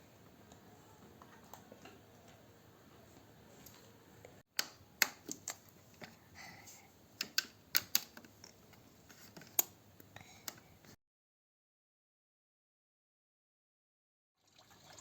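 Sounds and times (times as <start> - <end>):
faint room noise: 0.0 - 11.0
sharp clicks and taps: 4.5 - 6.2, 7.2 - 11.0.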